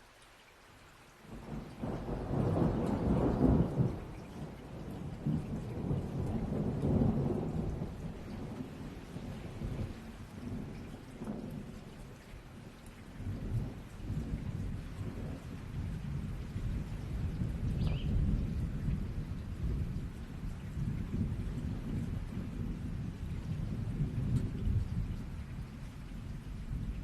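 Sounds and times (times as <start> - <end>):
steady rain: 0.0 - 27.0
thunder rolling: 1.8 - 11.7.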